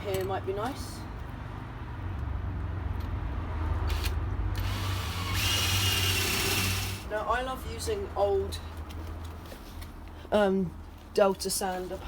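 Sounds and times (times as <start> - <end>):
drill boring into wood: 3.9 - 7.0.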